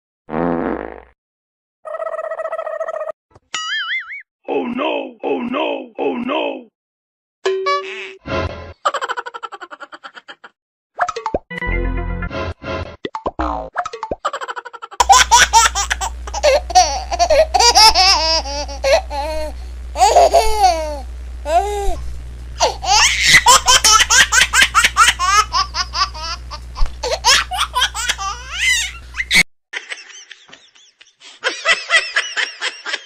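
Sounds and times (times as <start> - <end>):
high giggly laughing: 8.8 - 10.6, 14.3 - 22.0, 22.6 - 33.0.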